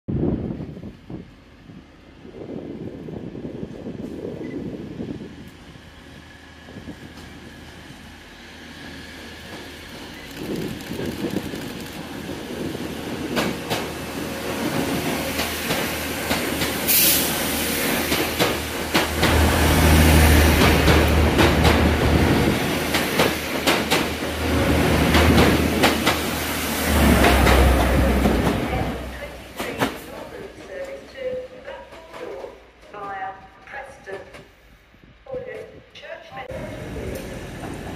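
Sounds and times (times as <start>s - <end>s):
train engine humming: 0.2s - 35.7s, 36.4s - 37.9s
train wheels knocking over rail joints: 18.0s - 26.3s.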